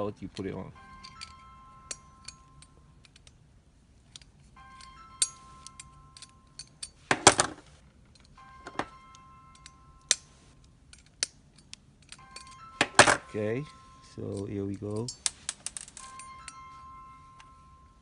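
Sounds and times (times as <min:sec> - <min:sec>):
faint steady tones: 0:00.0 - 0:18.0
toy parts clattering: 0:09.5 - 0:16.6.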